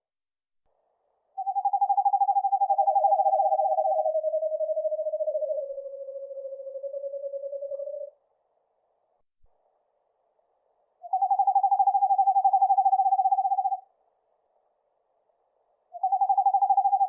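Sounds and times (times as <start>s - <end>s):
owl trilling: 1.4s - 8.2s, 11.0s - 13.9s, 15.9s - 17.0s.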